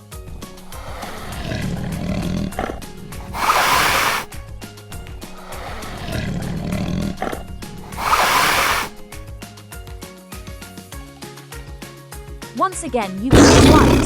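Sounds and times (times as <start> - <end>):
tiger roaring and growling: 0.0 - 9.2, 13.3 - 14.0.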